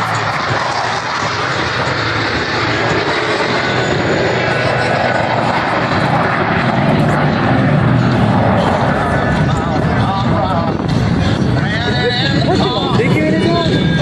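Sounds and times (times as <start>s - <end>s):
jet engines flying past: 0.0s - 14.0s.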